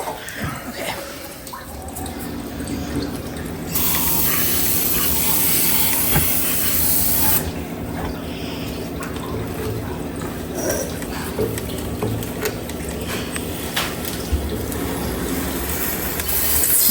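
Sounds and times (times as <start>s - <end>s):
aerosol spray hissing: 3.8s - 7.4s, 15.7s - 16.9s.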